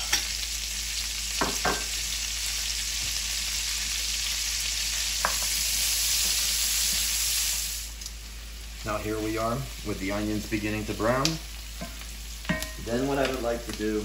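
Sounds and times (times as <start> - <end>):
onion and bacon sizzling: 0.0 - 14.0.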